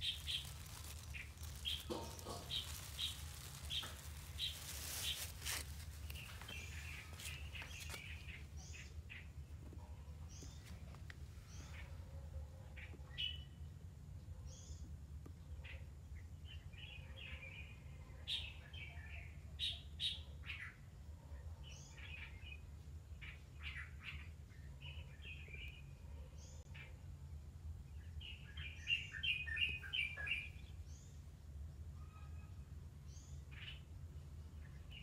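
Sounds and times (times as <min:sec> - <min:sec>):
birds chirping: 0:00.0 - 0:09.3.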